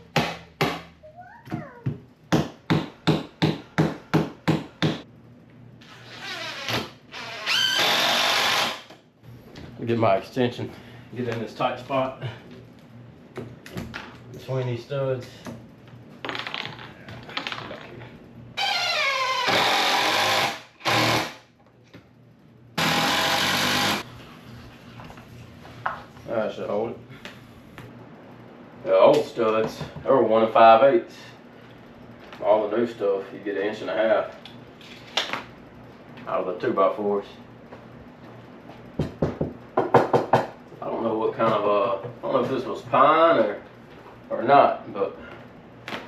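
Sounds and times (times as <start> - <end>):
power drill whirring: 6.0 - 8.9, 18.6 - 21.4, 22.8 - 24.0.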